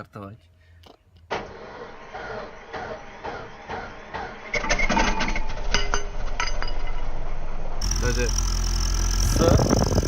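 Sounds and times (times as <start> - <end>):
car engine starting: 1.3 - 4.7.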